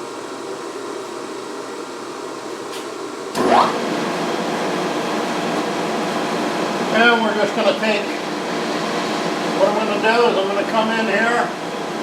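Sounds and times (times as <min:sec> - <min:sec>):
steady machine hum: 0:00.0 - 0:12.0
motor spinning up with whine: 0:03.3 - 0:10.2.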